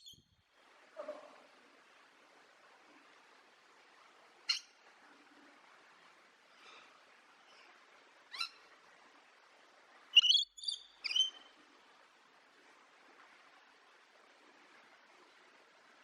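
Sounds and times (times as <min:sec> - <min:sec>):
faint steady hiss: 0:00.0 - 0:16.0
bird calling: 0:10.2 - 0:11.4.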